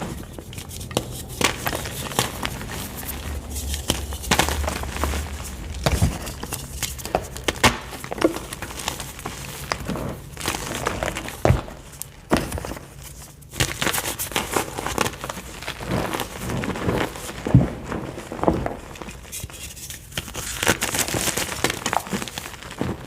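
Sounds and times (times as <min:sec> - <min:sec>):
chalk being crushed: 0:00.0 - 0:12.3.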